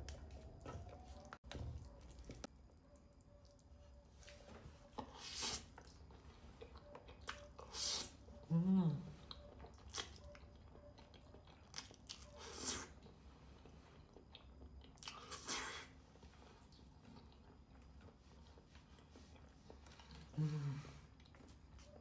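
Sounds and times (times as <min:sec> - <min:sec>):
chewing and wet mouth sounds: 0:00.0 - 0:22.0.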